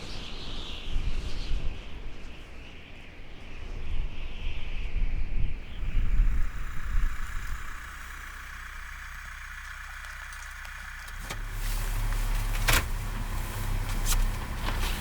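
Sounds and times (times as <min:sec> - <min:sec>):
car engine humming: 0:05.6 - 0:15.0
sharp clicks: 0:05.9 - 0:13.3.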